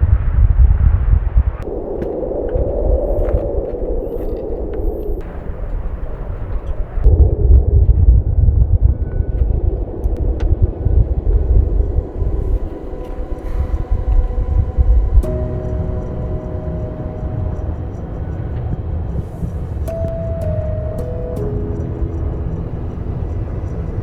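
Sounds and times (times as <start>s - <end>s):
strong gusting wind: 0.0s - 24.0s
background music: 10.2s - 24.0s.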